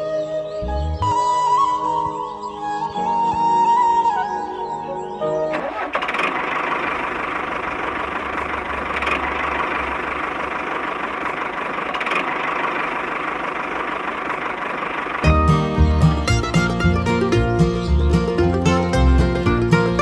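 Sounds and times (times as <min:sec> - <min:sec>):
music: 0:00.0 - 0:05.8, 0:15.2 - 0:20.0.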